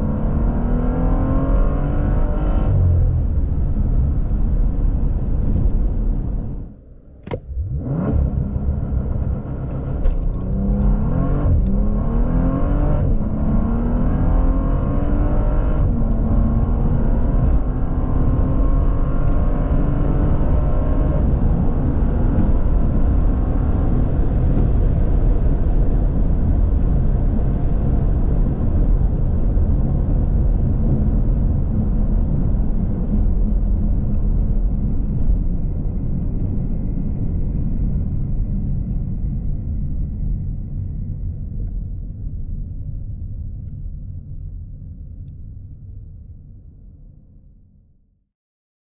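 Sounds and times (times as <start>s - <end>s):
car accelerating hard: 0.0s - 6.7s, 7.3s - 34.5s
click: 7.2s - 7.5s.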